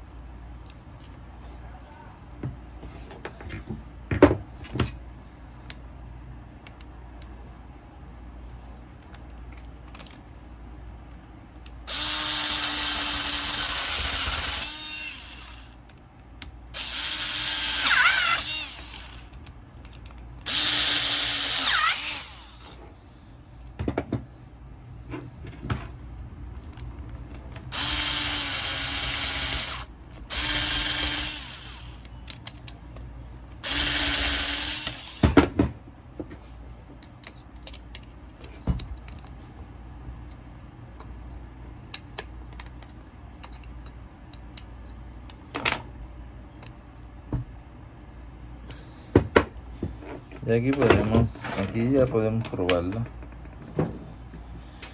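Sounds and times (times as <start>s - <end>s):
drill-driver motor running: 11.8s - 15.8s, 16.8s - 19.4s, 20.4s - 22.8s, 27.7s - 32.1s, 33.6s - 35.4s.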